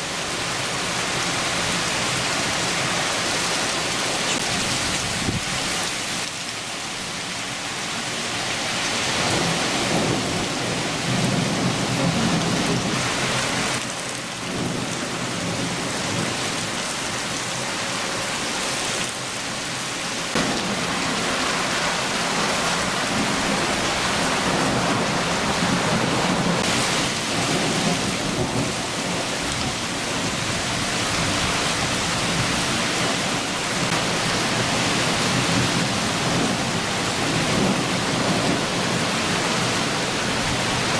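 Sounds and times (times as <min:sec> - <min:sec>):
rain downpour: 0:00.0 - 0:40.9
rolling thunder: 0:09.2 - 0:13.8, 0:20.3 - 0:40.9.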